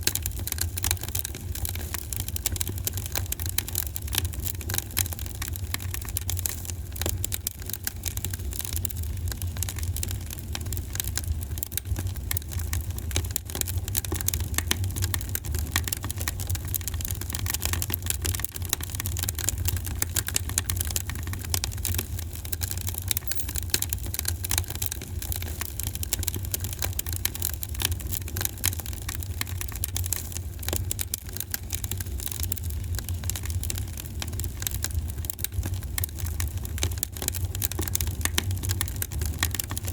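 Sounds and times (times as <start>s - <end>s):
wood fire crackling and popping: 25.0s - 39.9s.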